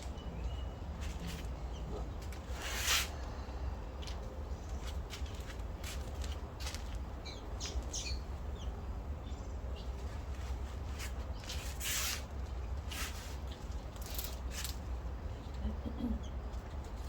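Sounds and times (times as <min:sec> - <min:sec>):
bird chirps and calls: 0:07.2 - 0:10.0.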